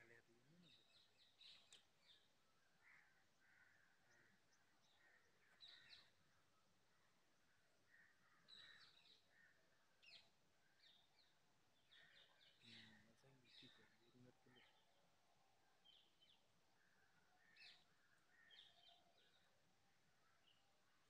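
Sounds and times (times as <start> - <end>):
faint bird chirps: 0.0 - 21.0.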